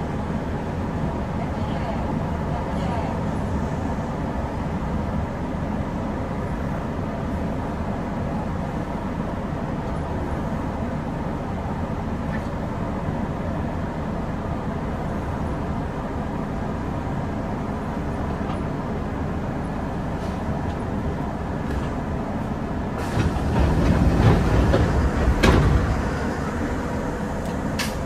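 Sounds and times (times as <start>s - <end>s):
train wheels rumbling: 15.4s - 28.0s.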